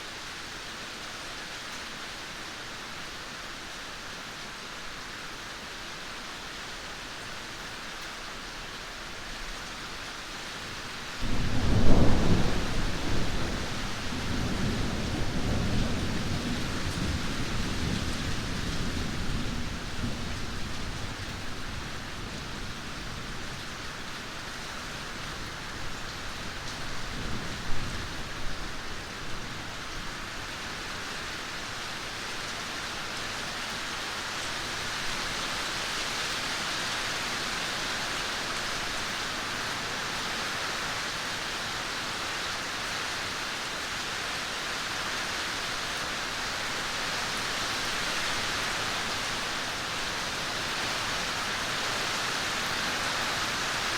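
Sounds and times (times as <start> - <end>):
heavy rain: 0.0 - 53.9
thunder rumble: 11.2 - 20.6.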